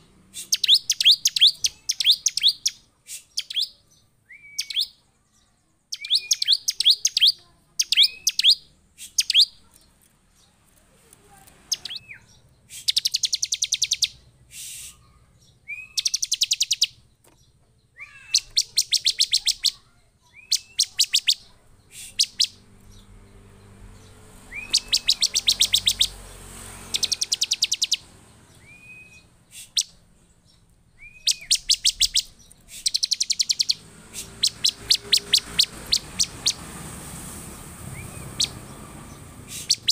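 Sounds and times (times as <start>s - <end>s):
bird singing whistles and trills: 0.4s - 5.0s, 5.9s - 9.6s, 11.7s - 17.0s, 18.0s - 22.6s, 24.0s - 26.1s, 26.8s - 30.0s, 30.9s - 36.7s, 37.9s - 39.9s.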